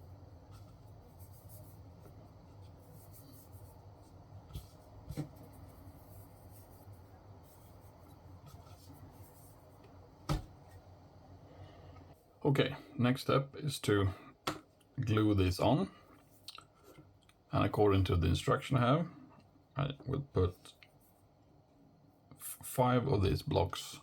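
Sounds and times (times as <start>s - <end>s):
steady low hum: 0.0s - 24.0s
scratching and rubbing on wood: 0.4s - 9.8s.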